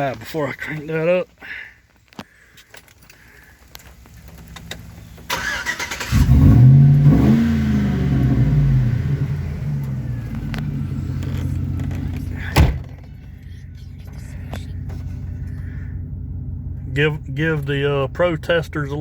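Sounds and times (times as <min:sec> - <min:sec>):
truck engine starting and idling: 0:00.0 - 0:19.0
starter cranking: 0:04.4 - 0:06.4
sharp thump: 0:12.5 - 0:13.1.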